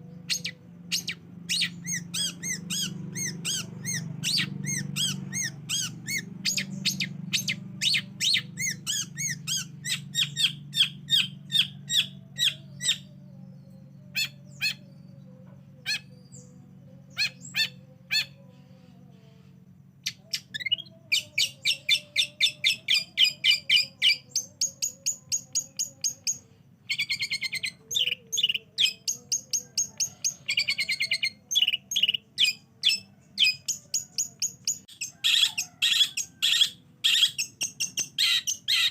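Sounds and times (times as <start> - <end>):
bird song with chattering trills: 0.0 - 38.9
faint low hum: 0.0 - 38.9.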